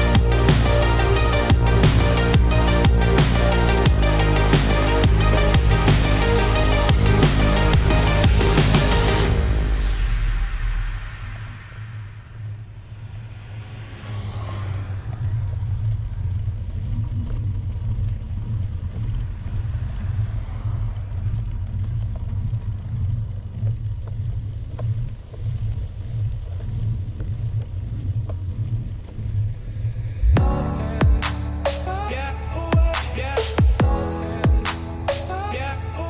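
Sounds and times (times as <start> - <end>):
road noise: 0.0 - 17.1, 18.5 - 23.5, 29.0 - 33.6.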